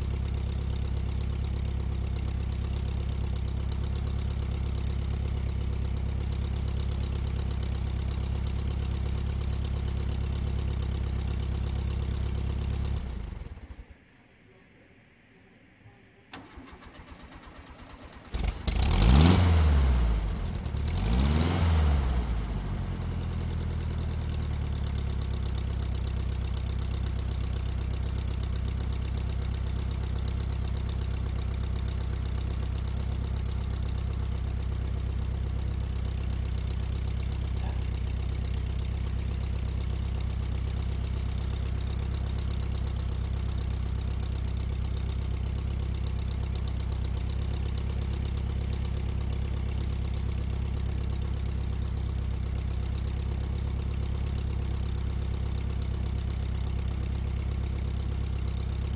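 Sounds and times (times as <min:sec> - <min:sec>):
engine idling: 0:00.0 - 0:14.0, 0:16.3 - 0:58.9
engine cranking and revving: 0:16.4 - 0:22.5.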